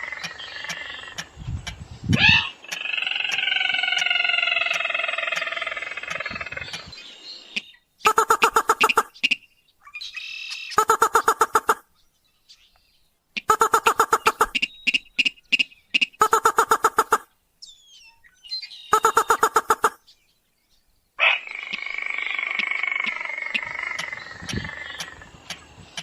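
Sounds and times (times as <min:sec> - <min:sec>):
harsh continuous bird call: 0:00.0 - 0:26.0
crake pulsed call: 0:08.1 - 0:09.4, 0:10.8 - 0:11.8, 0:13.4 - 0:17.3, 0:18.9 - 0:20.0.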